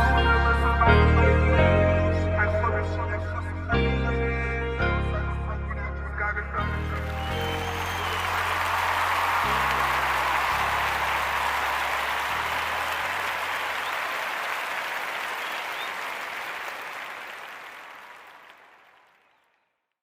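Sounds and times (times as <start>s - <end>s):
deep bass of hip-hop track: 0.0s - 7.8s
applause-like hiss: 6.8s - 19.4s.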